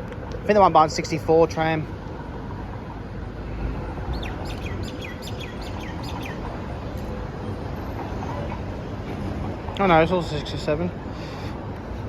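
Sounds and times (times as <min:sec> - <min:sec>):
low street rumble: 0:00.0 - 0:12.0
bird chirping: 0:04.1 - 0:06.5.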